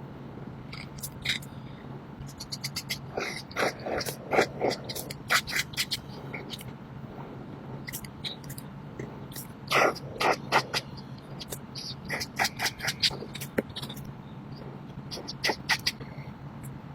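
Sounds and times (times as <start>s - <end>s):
coloring tool scratching on paper: 2.4s - 6.6s, 9.4s - 14.1s.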